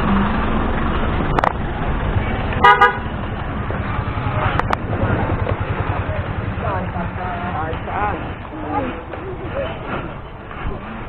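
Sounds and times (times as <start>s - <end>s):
wind and road noise: 0.0s - 11.0s
vehicle horn toot: 2.6s - 3.1s.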